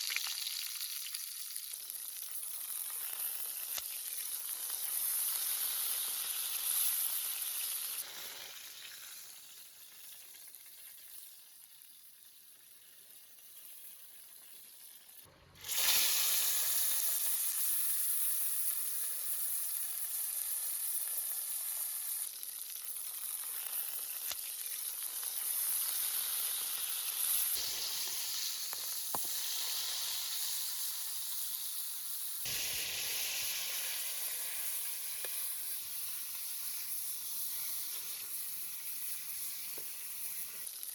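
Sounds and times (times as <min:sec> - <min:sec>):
food sizzling in hot fat: 0:00.0 - 0:40.9.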